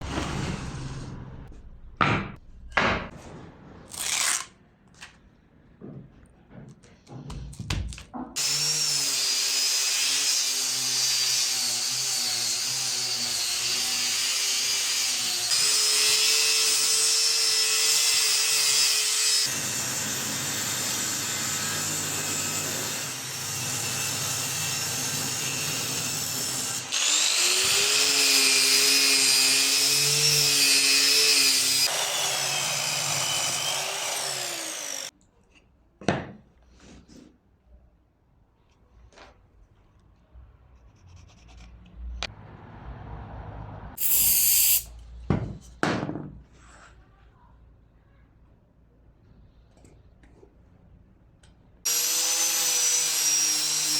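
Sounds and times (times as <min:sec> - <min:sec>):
power tool running on wood: 0:23.5 - 0:35.1.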